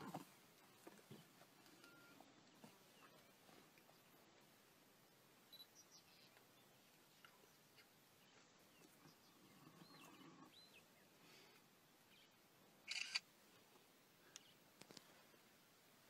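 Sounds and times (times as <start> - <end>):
faint high chirps: 1.8 - 3.4, 5.5 - 6.4.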